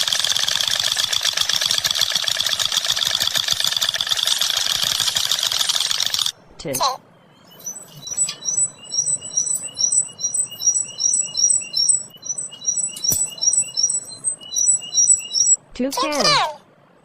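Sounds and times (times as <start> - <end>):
bird singing high chirps: 7.2 - 16.3.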